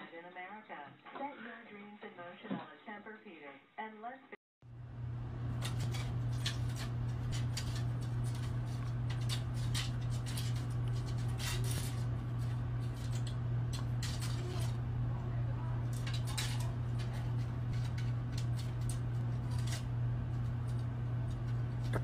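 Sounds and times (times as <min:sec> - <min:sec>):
steady low hum: 0:04.6 - 0:22.0
cat claws scratching wooden door: 0:05.5 - 0:14.8, 0:15.8 - 0:21.9.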